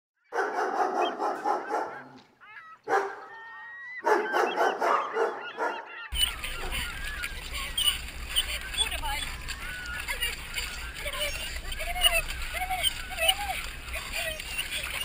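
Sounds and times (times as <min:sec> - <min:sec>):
dog barking: 0:00.2 - 0:06.9.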